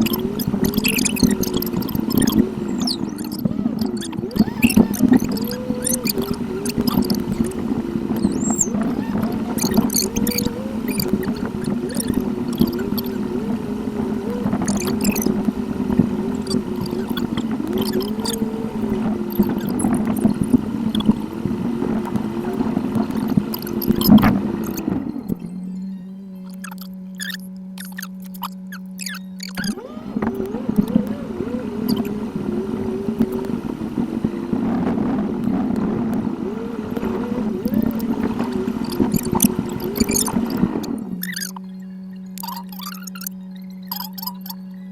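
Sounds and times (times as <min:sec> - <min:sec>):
rising and falling tone: 0:00.0 - 0:41.8
sped-up car engine drone: 0:00.0 - 0:44.9
short ticks: 0:42.4 - 0:44.6.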